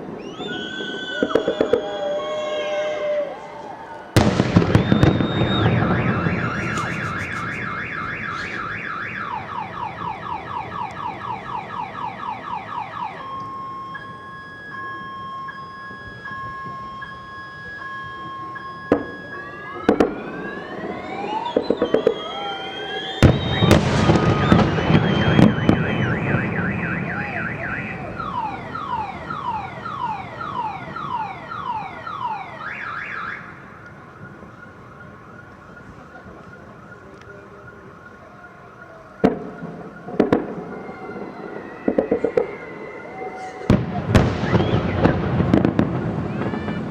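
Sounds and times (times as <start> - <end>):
firework bangs: 0.0 - 2.6, 4.2 - 12.5, 18.7 - 31.7, 39.2 - 46.9
firework crackling: 0.0 - 2.7, 4.2 - 11.7, 18.7 - 31.6, 39.2 - 46.9
car alarm: 0.0 - 3.1, 4.2 - 46.9.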